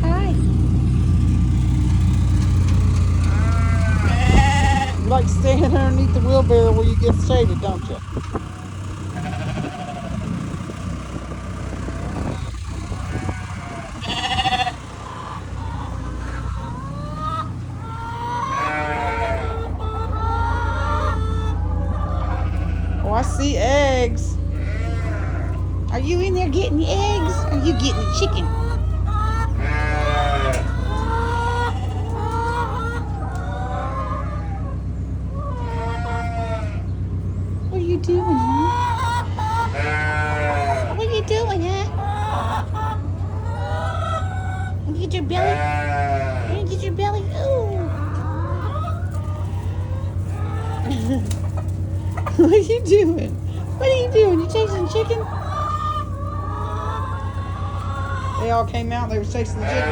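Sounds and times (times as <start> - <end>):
steady low rumble: 0.0 - 59.9
sheep bleating: 3.2 - 5.7, 9.1 - 10.2, 12.9 - 15.1, 18.1 - 19.8, 21.7 - 28.8, 29.4 - 32.2, 38.4 - 42.0, 44.9 - 48.6, 59.3 - 59.9.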